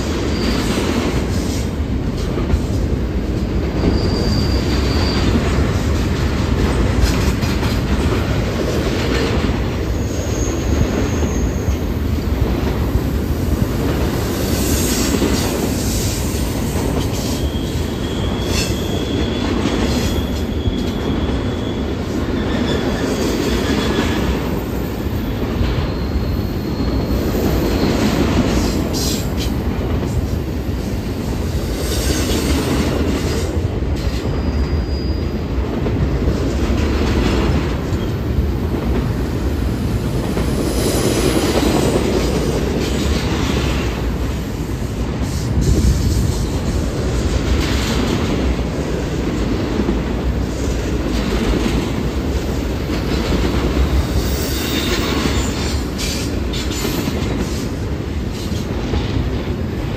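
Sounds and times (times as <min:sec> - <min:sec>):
steel wheels rumbling on rail: 0:00.0 - 0:59.9
high wheel squeal: 0:00.2 - 0:00.8, 0:03.8 - 0:05.5, 0:09.9 - 0:11.8, 0:17.2 - 0:29.3, 0:34.3 - 0:35.4, 0:54.0 - 0:56.8.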